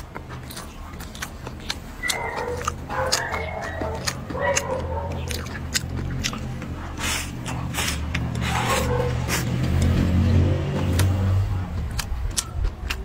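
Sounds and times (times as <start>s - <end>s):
close-up chewing with mouth smacks: 0.0s - 13.0s.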